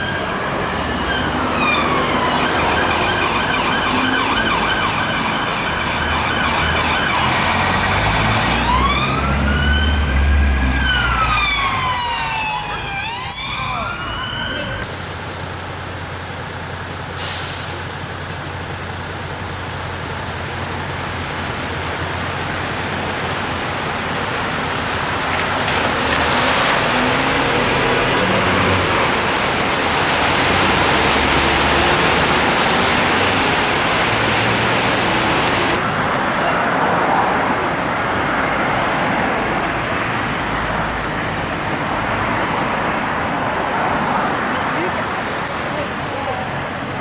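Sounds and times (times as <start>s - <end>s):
car engines passing: 0.0s - 47.0s
road noise hiss: 14.9s - 36.4s.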